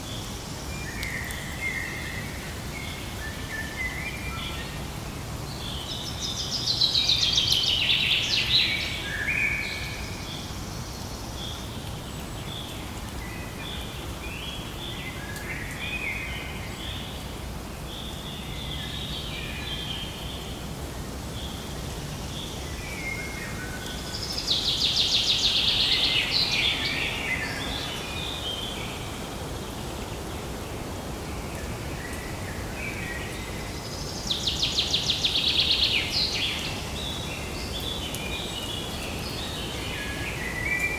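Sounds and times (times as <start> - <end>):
songbirds trilling and chirping: 0.0 - 40.9
steady background hiss: 0.0 - 40.9.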